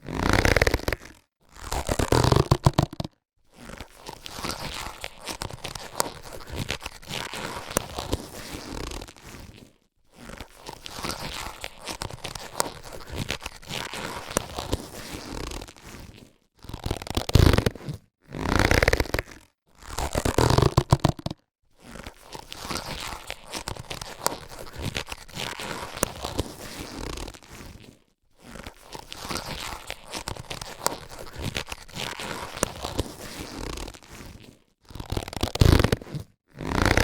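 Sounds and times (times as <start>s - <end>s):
latex gloves rustling and squeaking: 0.0s - 37.0s.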